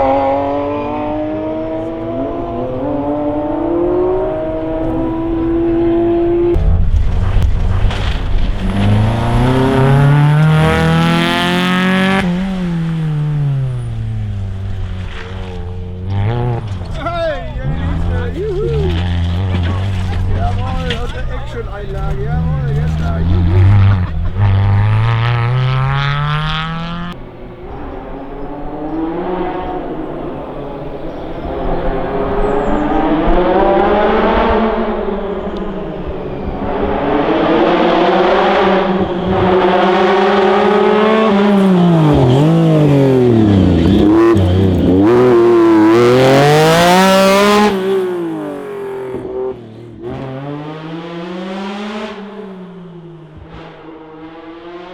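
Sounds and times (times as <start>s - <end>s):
rally car engine at full throttle: 0.0s - 54.9s.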